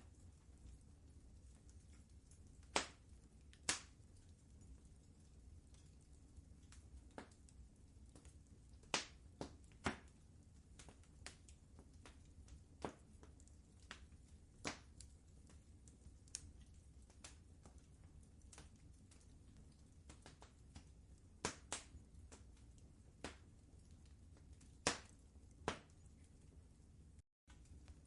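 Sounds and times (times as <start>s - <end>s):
fire crackling and popping: 0.0s - 28.0s
low rumble of fire: 0.0s - 28.0s.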